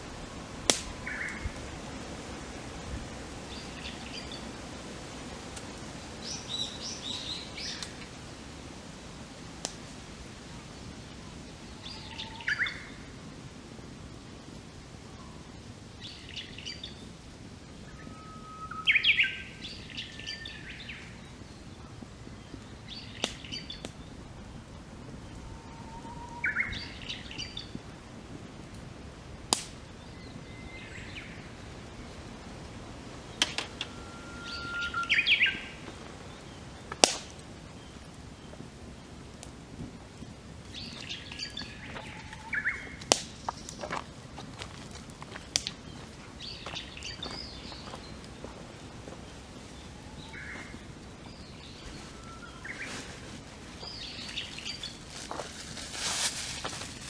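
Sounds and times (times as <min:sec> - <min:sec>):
campfire popping: 0:00.0 - 0:57.0
birds singing whistles and warbles: 0:01.0 - 0:01.6, 0:06.2 - 0:08.0, 0:11.7 - 0:13.0, 0:17.9 - 0:24.2, 0:25.2 - 0:27.8, 0:29.9 - 0:32.2, 0:33.2 - 0:36.8, 0:40.7 - 0:43.9, 0:45.9 - 0:48.6, 0:49.2 - 0:55.4.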